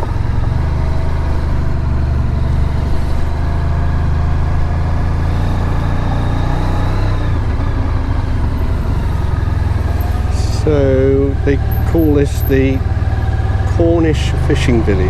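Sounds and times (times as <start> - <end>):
motorcycle engine droning: 0.0 - 15.0
road and wind noise: 0.0 - 15.0.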